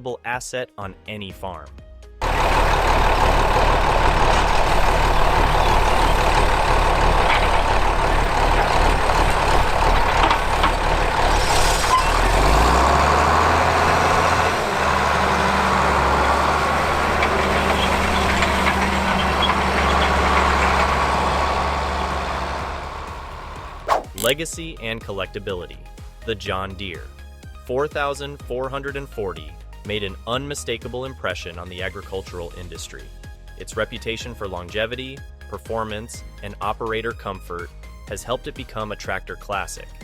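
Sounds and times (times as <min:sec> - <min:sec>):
tractor diesel engine running: 0:02.2 - 0:24.3.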